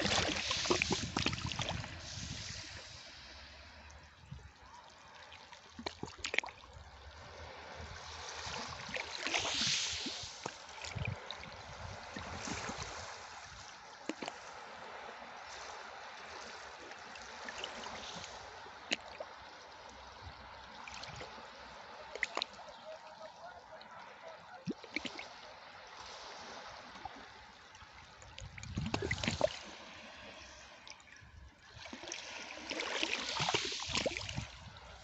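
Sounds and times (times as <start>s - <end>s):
sharp water splashes: 0.0s - 2.1s, 32.0s - 34.5s
sea water washing at shore: 0.0s - 35.0s.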